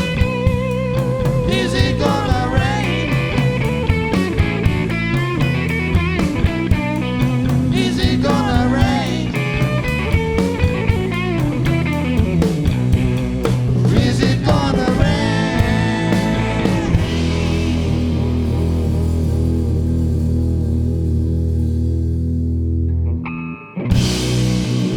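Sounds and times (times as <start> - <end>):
held low bass note: 0.0 - 23.0
electric guitar lines: 0.0 - 24.9
live rock band instrumental: 0.0 - 24.9
drum hits: 9.9 - 19.0, 24.0 - 24.9.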